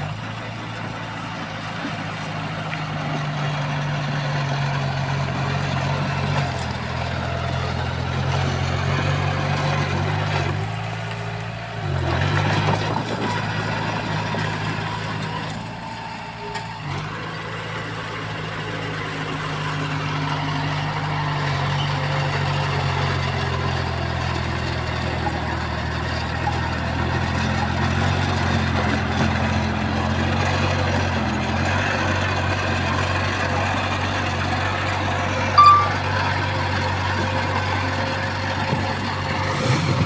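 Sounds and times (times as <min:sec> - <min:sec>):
heavy diesel machinery engine running: 0:00.0 - 0:40.0
short high-pitched tone: 0:35.6 - 0:36.4.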